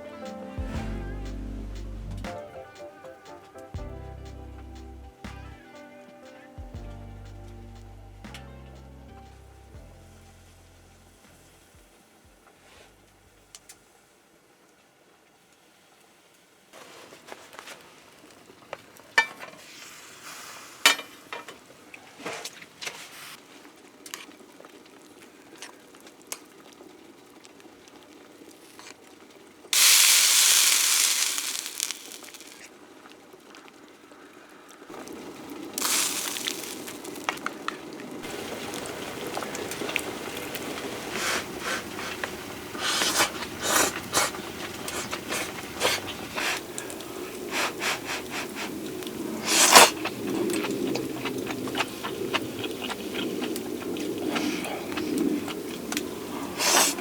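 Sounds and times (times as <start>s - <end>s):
food sizzling in a pan: 29.8s - 32.7s, 35.8s - 37.4s.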